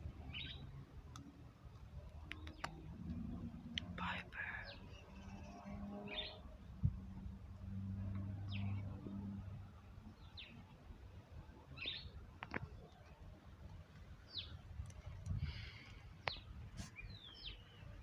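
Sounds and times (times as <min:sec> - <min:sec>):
small bird chirping: 0:00.2 - 0:00.7, 0:16.2 - 0:17.9.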